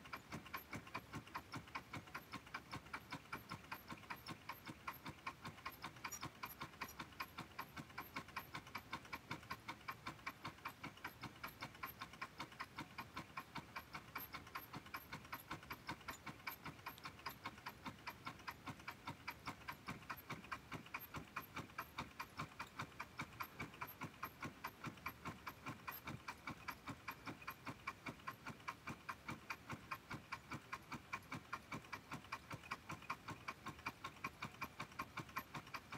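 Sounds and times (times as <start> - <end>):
engine ticking steadily: 0.0 - 35.9.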